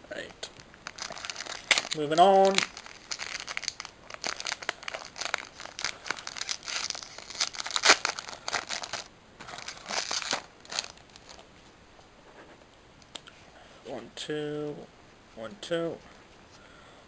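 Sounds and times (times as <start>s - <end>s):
foil wrapper tearing and crinkling: 0.8s - 11.4s.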